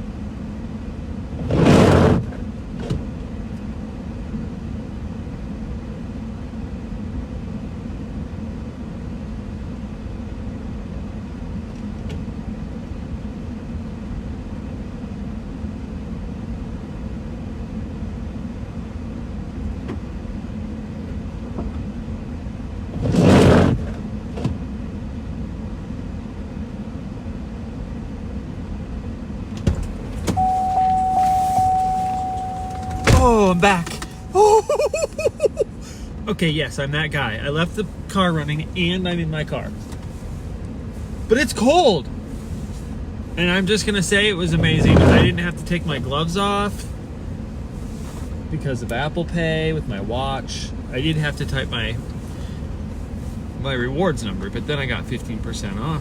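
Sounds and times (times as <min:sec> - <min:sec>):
car engine idling: 0:29.7 - 0:38.8
steady electronic tone: 0:30.4 - 0:34.4.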